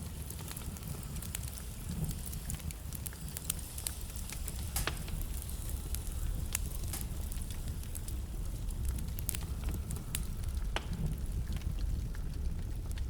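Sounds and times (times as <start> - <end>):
fire pops and snaps: 0.0 - 13.0
fire rumbling: 0.0 - 13.0.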